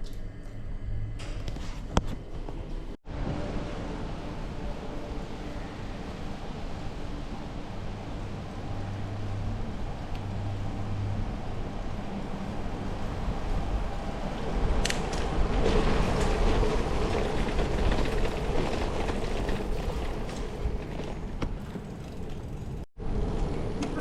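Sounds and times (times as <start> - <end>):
bicycle road noise and wind: 0.1 - 24.0
bicycle clicks and rattles: 14.6 - 22.9.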